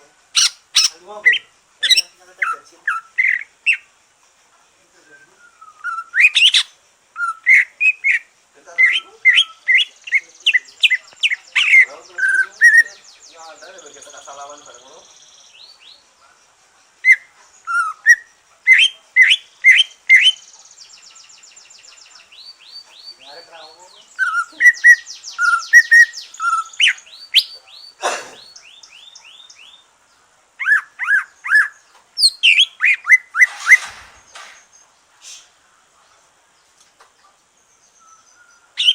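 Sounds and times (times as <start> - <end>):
fast high bird trills: 0.4 - 3.9, 5.6 - 8.2, 17.1 - 29.8, 30.6 - 35.5
bird whistling loud clear notes: 5.1 - 13.0, 23.9 - 29.8, 30.6 - 34.6, 38.0 - 38.9.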